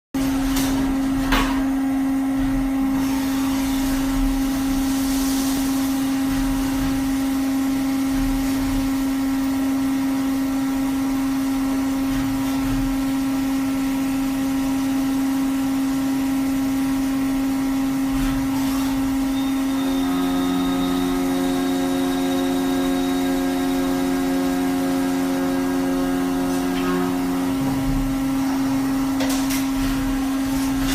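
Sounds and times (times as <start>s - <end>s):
lathe motor hum: 17.2s - 30.9s
steady machine tones: 18.4s - 29.2s.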